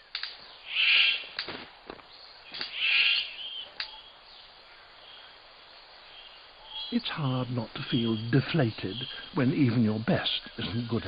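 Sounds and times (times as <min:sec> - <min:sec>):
sharp clicks: 0:00.1 - 0:00.4
bird harsh rasping calls: 0:00.6 - 0:01.4, 0:02.5 - 0:04.1.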